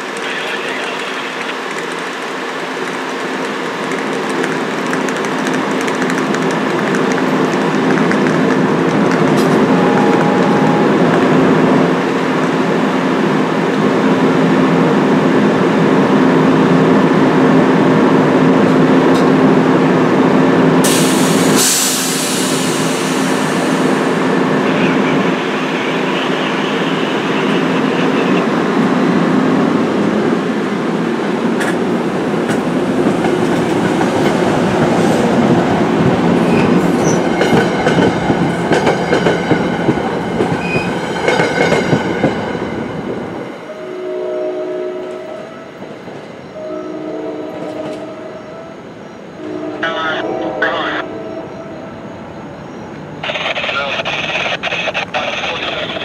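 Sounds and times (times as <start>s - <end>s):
train engine humming: 0.0s - 56.0s
train wheels clicking on rail joints: 1.6s - 9.7s
air hiss: 20.8s - 24.1s.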